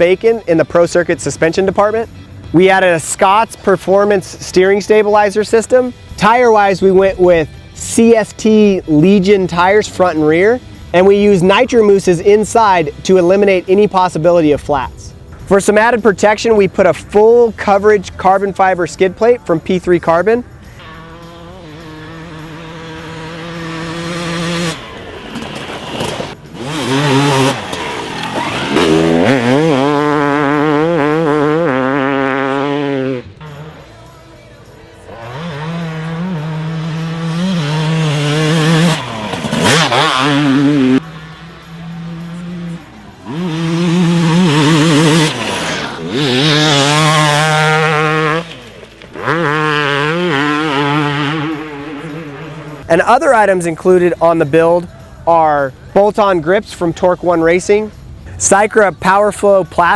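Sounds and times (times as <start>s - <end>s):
dirt bike engine revving: 18.8s - 53.2s.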